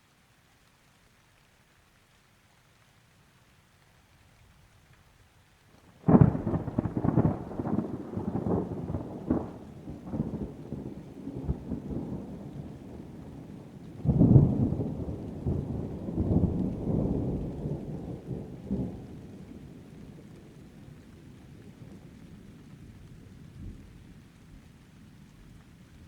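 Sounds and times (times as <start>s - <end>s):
steady rain: 0.0s - 26.0s
thunder cracking and rumbling: 6.0s - 20.5s.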